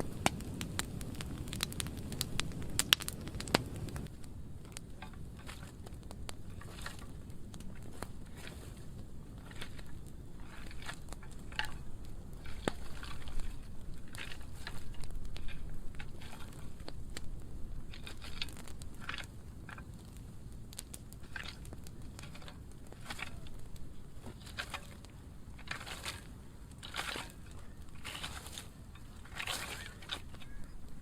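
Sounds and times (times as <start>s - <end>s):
fire crackling and popping: 0.0s - 31.0s
fire low rumble: 0.0s - 31.0s.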